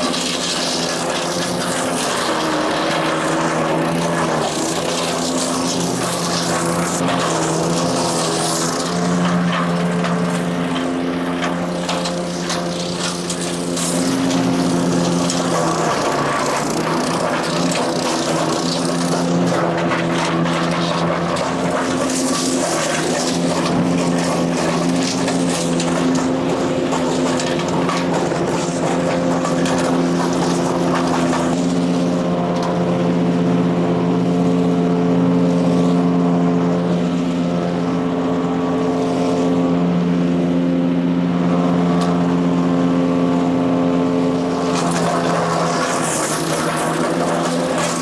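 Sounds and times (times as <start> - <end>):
material being chipped and shredded: 0.0 - 31.8, 44.7 - 48.0
engine running under load: 0.0 - 48.0.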